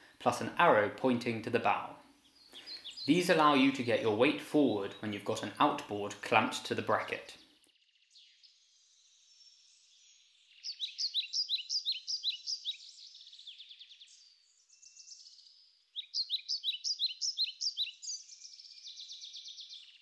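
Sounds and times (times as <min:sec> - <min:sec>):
songbird singing: 0:00.0 - 0:20.0
soft bird trilling: 0:10.6 - 0:14.0, 0:16.0 - 0:19.8.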